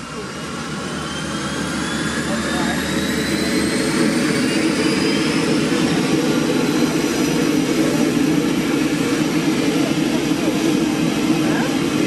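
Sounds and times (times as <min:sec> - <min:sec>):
turboprop engine drone: 0:00.0 - 0:12.0.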